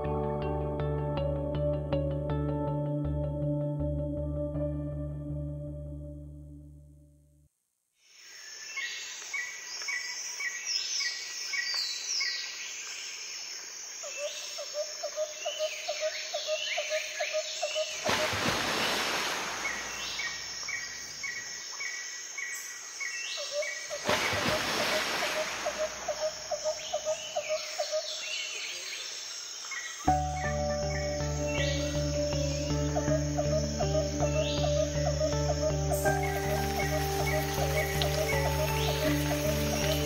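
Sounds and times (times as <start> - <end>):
insects trilling: 8.1 - 40.0
birds chirping: 15.4 - 40.0.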